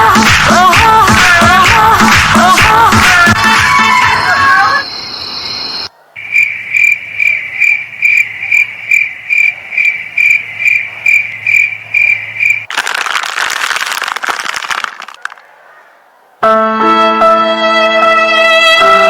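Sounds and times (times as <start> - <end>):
crickets chirping: 4.8 - 12.7.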